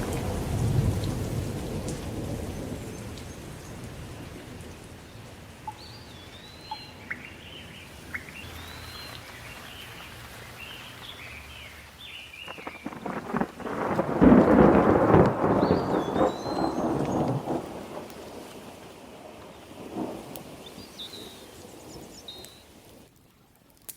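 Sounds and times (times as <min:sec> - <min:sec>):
thunder rumbling: 0:00.0 - 0:05.7, 0:12.4 - 0:22.3
rain hiss: 0:00.0 - 0:23.1
small bird singing: 0:05.7 - 0:13.0, 0:20.6 - 0:22.7.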